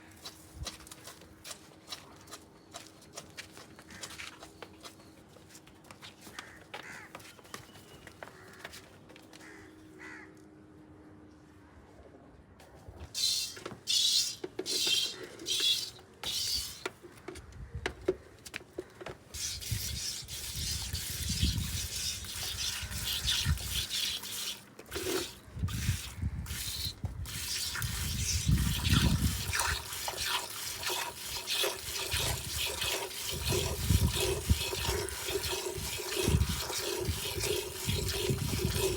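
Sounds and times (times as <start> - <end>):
milk squirting into container: 13.2 - 16.8, 19.4 - 38.9.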